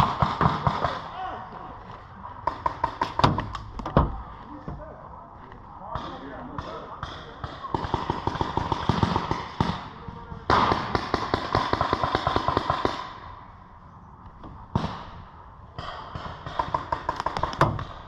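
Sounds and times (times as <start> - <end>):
paintball markers firing: 15.8 - 18.0.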